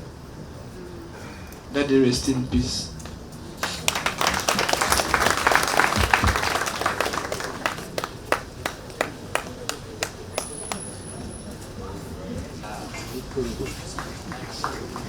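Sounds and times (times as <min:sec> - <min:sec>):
audience applauding: 0:03.0 - 0:11.3, 0:12.9 - 0:15.0.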